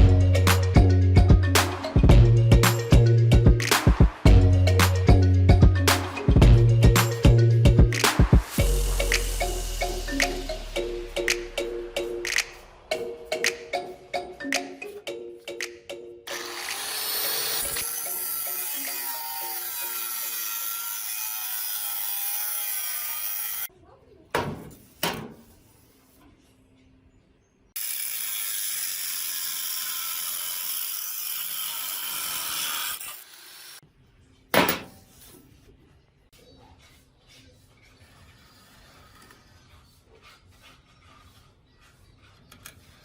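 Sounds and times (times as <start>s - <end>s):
power tool grinding metal: 16.3s - 23.7s, 27.8s - 33.8s.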